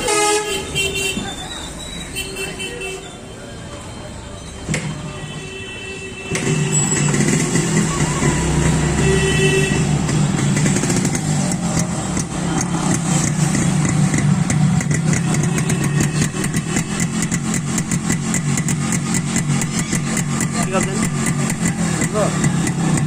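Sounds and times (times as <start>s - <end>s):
motorcycle engine running: 9.7s - 23.0s
exhaust popping: 9.8s - 23.0s.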